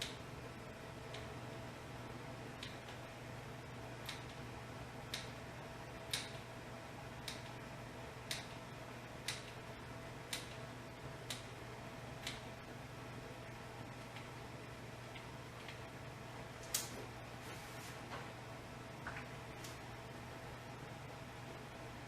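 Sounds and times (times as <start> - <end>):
low electrical hum: 0.0 - 22.0
sharp clicks: 6.1 - 6.4, 9.2 - 9.6, 10.3 - 10.6.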